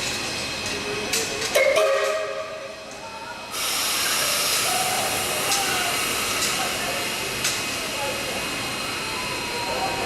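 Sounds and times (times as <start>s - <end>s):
steam locomotive hissing: 3.2s - 10.0s
loud rush of steam: 3.4s - 10.0s.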